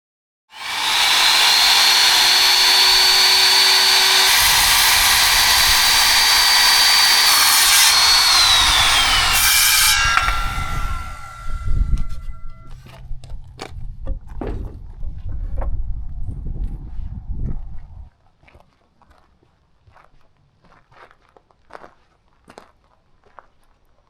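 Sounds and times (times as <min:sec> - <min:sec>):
chainsaw cutting tree: 0:00.5 - 0:12.4.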